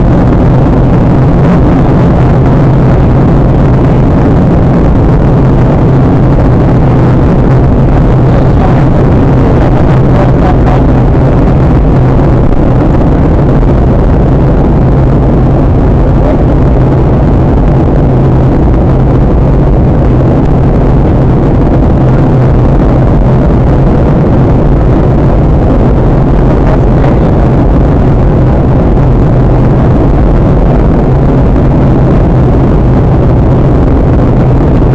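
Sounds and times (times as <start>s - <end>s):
airliner cabin airflow and engines: 0.0s - 34.9s
low steady hum: 0.0s - 34.9s.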